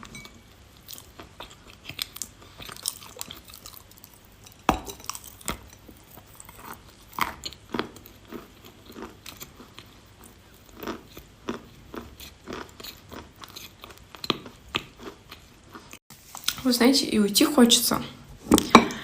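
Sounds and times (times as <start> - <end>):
chalk being chewed: 5.0 - 16.6.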